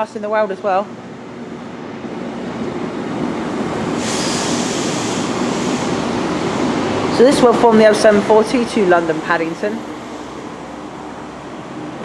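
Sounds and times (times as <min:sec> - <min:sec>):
train engine rumble: 0:00.0 - 0:12.0
high hiss: 0:03.8 - 0:07.0.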